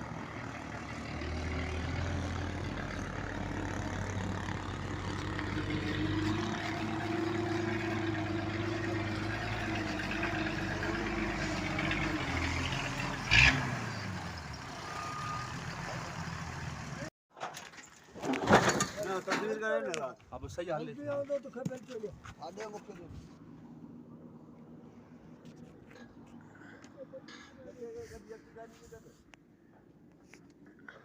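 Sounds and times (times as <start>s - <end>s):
heavy truck engine running: 0.0s - 17.1s.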